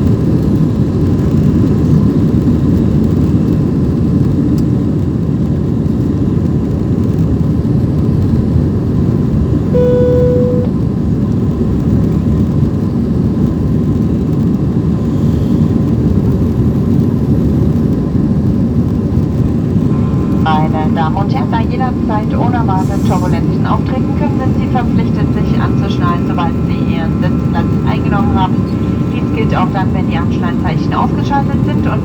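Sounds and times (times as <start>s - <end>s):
cabin chime: 9.8s - 10.7s
airplane cabin engine rush: 11.3s - 32.0s.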